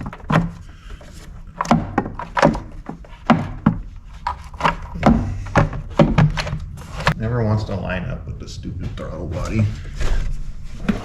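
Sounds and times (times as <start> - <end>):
air box knocking and clunking: 0.0 - 7.2.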